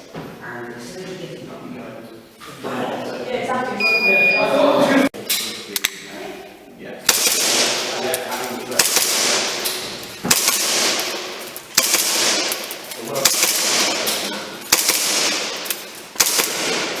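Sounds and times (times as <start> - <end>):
airsoft pistol shots: 7.1 - 17.0.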